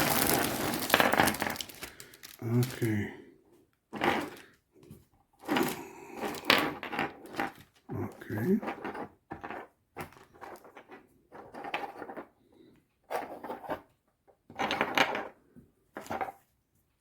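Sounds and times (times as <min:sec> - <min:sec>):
wooden chess pieces knocking: 0:00.0 - 0:01.8, 0:05.5 - 0:12.3.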